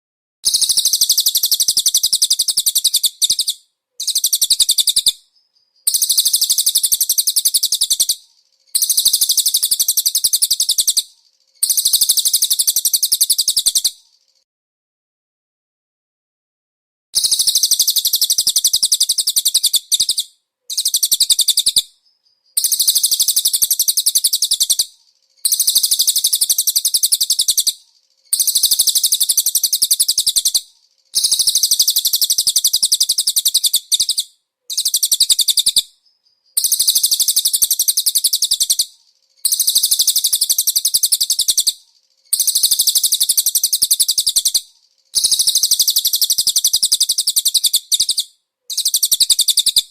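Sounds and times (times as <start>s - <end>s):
songbird chattering trill: 0.4s - 14.4s, 17.2s - 49.9s.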